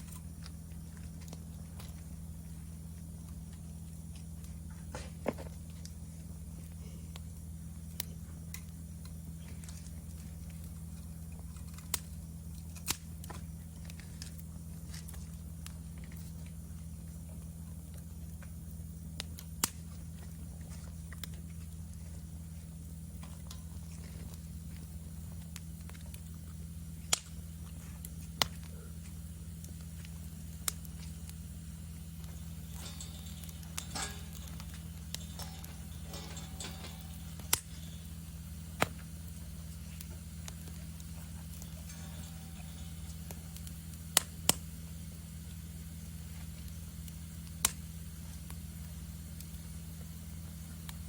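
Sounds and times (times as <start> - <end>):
campfire crackling and popping: 0.0 - 51.0
faint insect calls: 0.0 - 51.0
steady low hum: 0.0 - 51.0.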